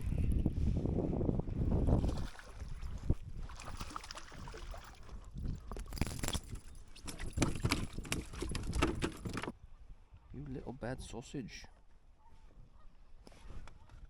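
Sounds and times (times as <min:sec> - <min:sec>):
wind buffeting microphone: 0:00.0 - 0:09.6
water sloshing: 0:01.9 - 0:09.6.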